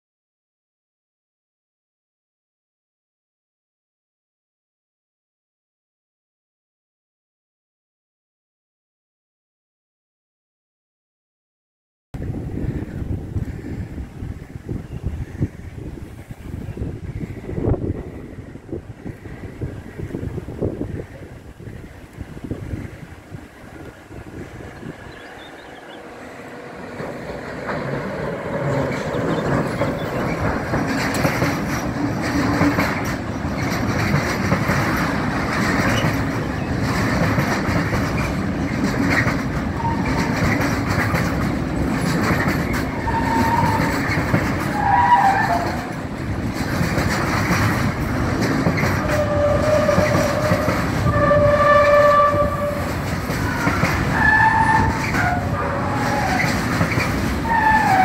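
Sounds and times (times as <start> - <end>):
wagon wheels clattering over rails: 26.9 - 58.0
wheel squealing: 42.0 - 46.0, 48.8 - 58.0.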